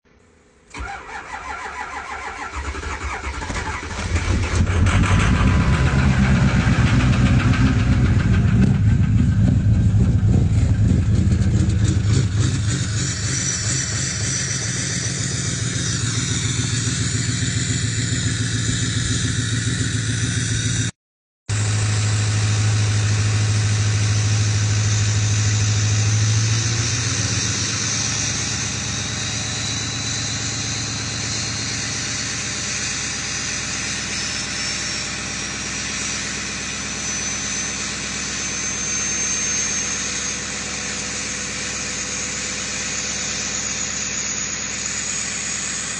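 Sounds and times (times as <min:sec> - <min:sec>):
diesel engine idling: 0:00.7 - 0:20.5, 0:21.5 - 0:45.9
faint high whistle: 0:24.4 - 0:45.9.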